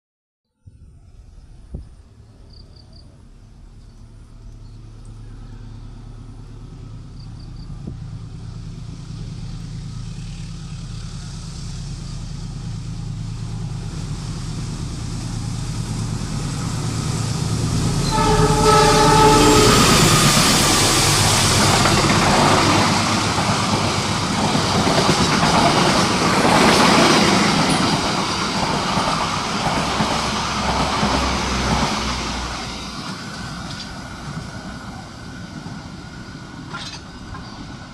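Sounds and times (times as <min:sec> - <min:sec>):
diesel locomotive rumble: 0:00.7 - 0:37.9
locomotive horn blast: 0:17.9 - 0:21.4
wheels clattering over rail joints: 0:36.6 - 0:37.7.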